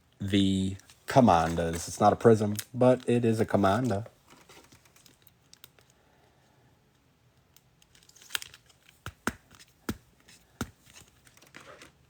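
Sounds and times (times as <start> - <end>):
cards clicking and tapping on table: 9.0 - 11.2.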